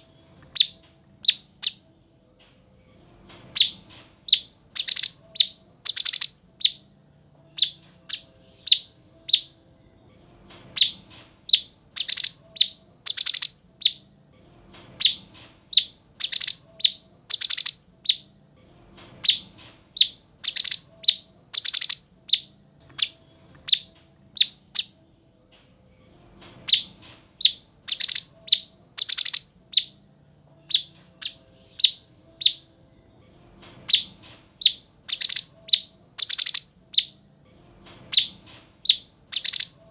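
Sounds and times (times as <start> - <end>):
bird singing whistles and trills: 0.6 - 1.8, 3.6 - 6.8, 7.6 - 9.5, 10.8 - 14.0, 15.8 - 18.2, 20.0 - 24.9, 26.7 - 30.0, 30.7 - 32.6, 33.9 - 37.2, 38.1 - 39.8.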